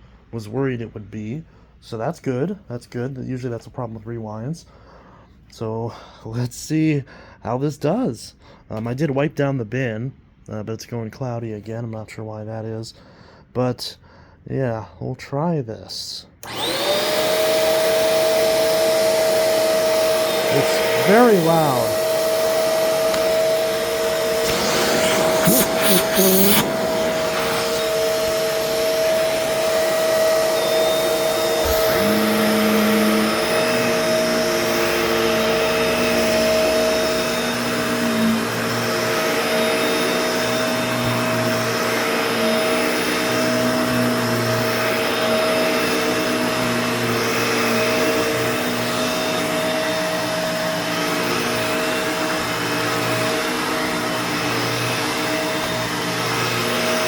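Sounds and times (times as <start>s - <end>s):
upright vacuum running: 16.4s - 57.0s
whistling grinding tone: 16.4s - 57.0s.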